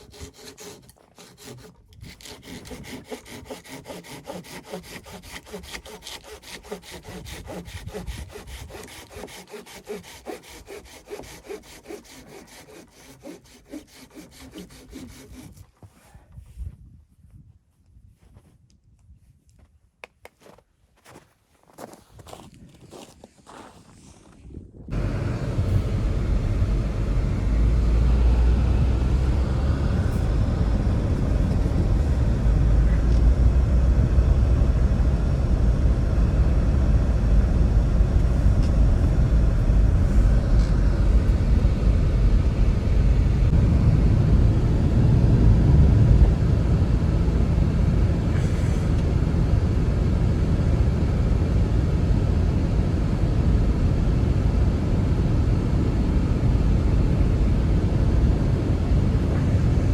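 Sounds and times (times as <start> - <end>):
blizzard wind buffeting microphone: 21.7 - 59.9.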